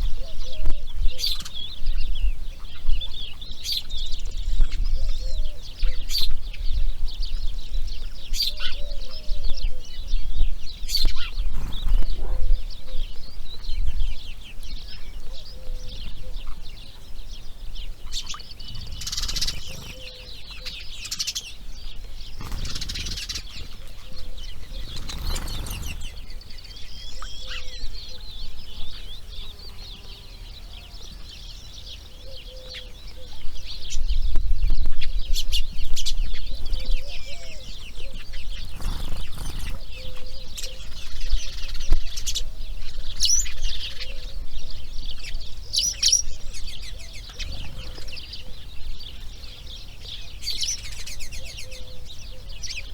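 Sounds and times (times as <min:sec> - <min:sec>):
wind rumble on microphone: 0:00.0 - 0:30.0, 0:30.8 - 0:52.9
heron chicks chattering: 0:10.7 - 0:34.2, 0:34.9 - 0:52.9
wingbeats rushing: 0:11.0 - 0:12.6, 0:18.1 - 0:21.6, 0:22.2 - 0:27.7, 0:38.4 - 0:44.0, 0:46.8 - 0:51.7.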